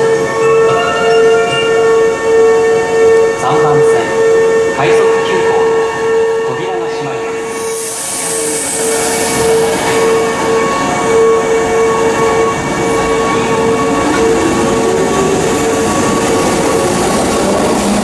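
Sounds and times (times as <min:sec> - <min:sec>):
electric train rumble: 0:00.0 - 0:18.0.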